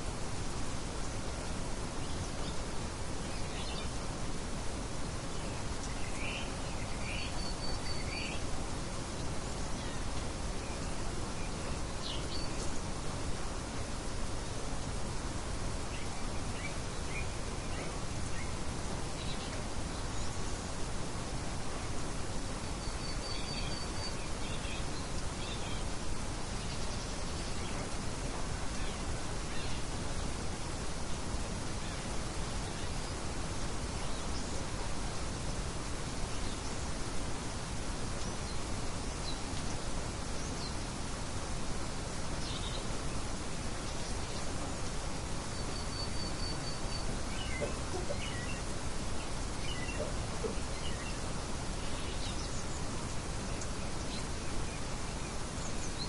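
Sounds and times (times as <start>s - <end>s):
rushing hiss: 0.0s - 56.0s
birds chirping: 36.0s - 56.0s
faint bird calls: 43.9s - 52.8s.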